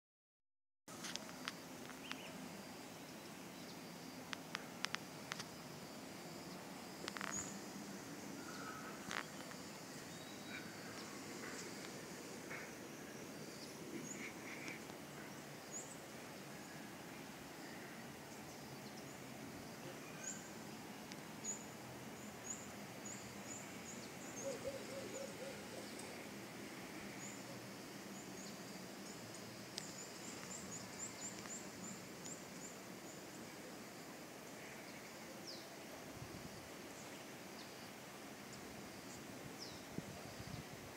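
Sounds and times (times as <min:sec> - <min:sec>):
faint steady background noise: 0:00.9 - 0:40.9
birds chirping and calling: 0:22.5 - 0:26.2.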